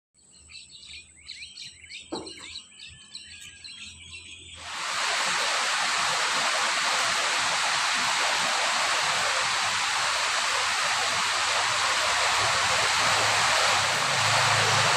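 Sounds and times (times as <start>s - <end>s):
small birds chirping: 0.2s - 14.9s
running water rushing: 4.6s - 14.9s.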